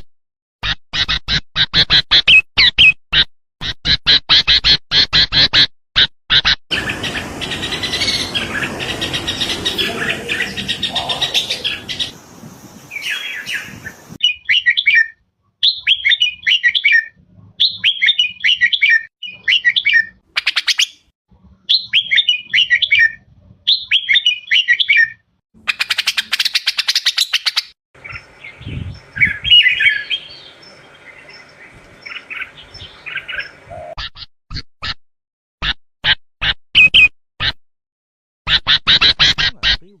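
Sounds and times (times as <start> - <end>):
dense rough noise: 6.7 - 12.2
bird chirping phrases: 6.7 - 21.1, 21.7 - 34.3, 39.0 - 40.0.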